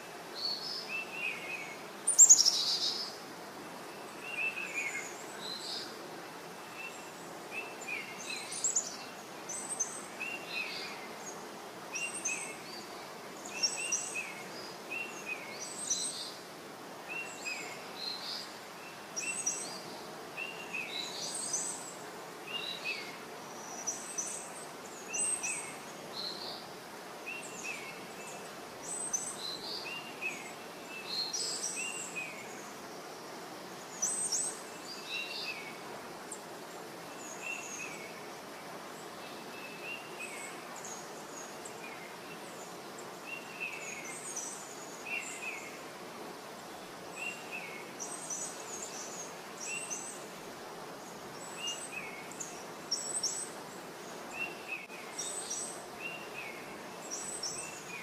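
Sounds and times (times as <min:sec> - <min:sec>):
steady background hiss: 0:00.0 - 0:58.0.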